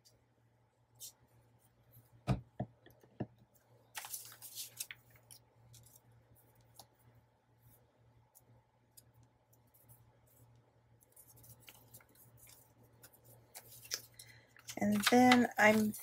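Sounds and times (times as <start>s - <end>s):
paper rustling: 3.9s - 6.0s, 11.0s - 16.0s.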